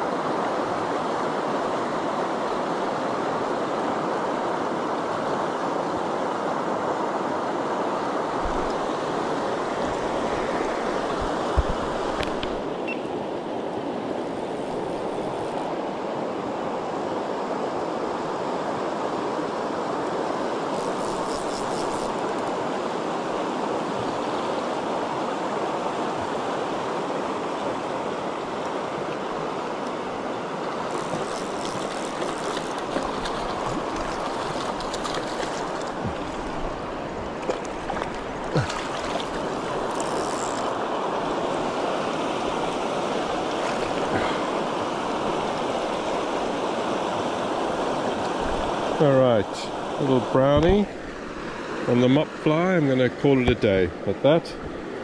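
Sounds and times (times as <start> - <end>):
river rushing over rocks: 0.0 - 55.0
fishing reel ratchet clicking: 20.8 - 22.3, 39.9 - 40.8.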